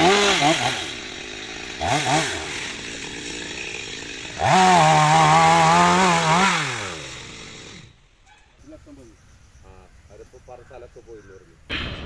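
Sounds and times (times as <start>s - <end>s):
chainsaw revving and idling: 0.0s - 8.0s.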